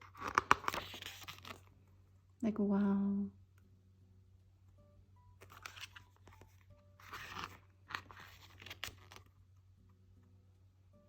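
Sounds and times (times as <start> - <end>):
book pages rustling: 0.0 - 1.8, 5.4 - 9.6.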